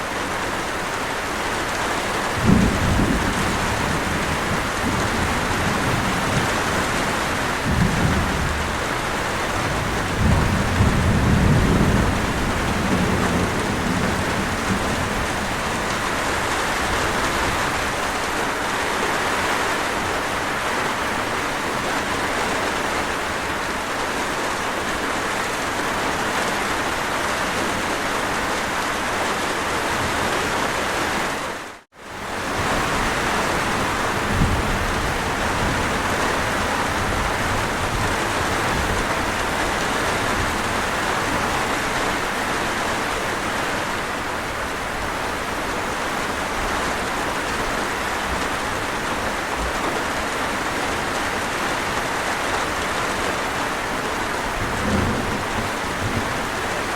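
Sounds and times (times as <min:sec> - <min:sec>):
heavy rain: 0:00.0 - 0:56.9
low thunder rolls: 0:02.4 - 0:18.0, 0:32.4 - 0:42.3.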